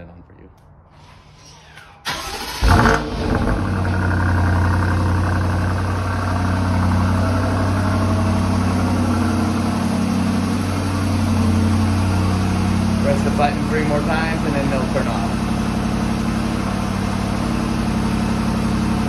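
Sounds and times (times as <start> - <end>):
engine starter catching: 1.6 - 3.6
car engine idling: 1.6 - 19.0.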